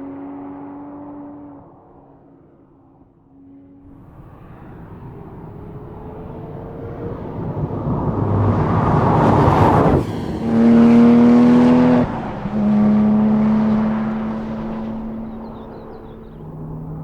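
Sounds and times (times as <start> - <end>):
car engine accelerating hard: 3.6 - 17.0.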